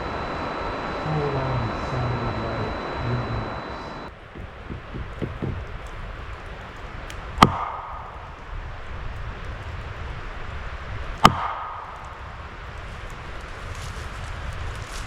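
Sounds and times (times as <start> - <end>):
sharp ringing knocks: 0.0 - 5.7.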